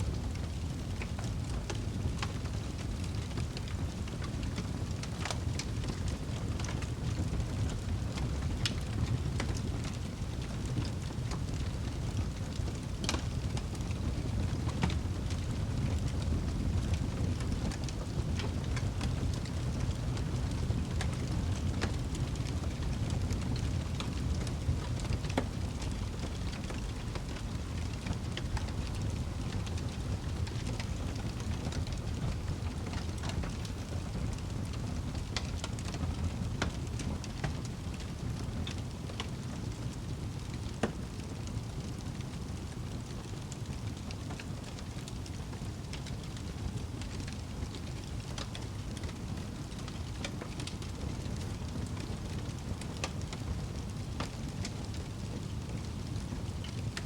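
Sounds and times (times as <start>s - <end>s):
fireplace fire crackling: 0.0s - 57.0s.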